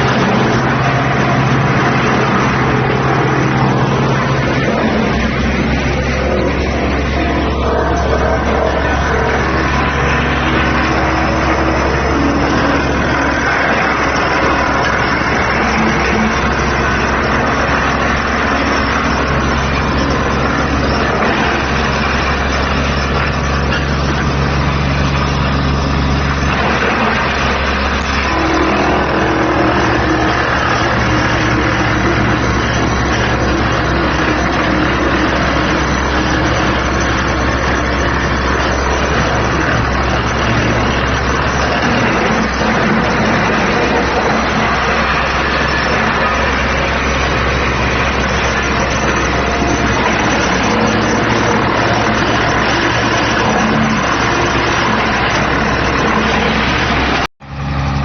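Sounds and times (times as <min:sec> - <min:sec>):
chipping machinery noise: 0:00.0 - 0:58.0
wood chipper engine drone: 0:00.0 - 0:58.0.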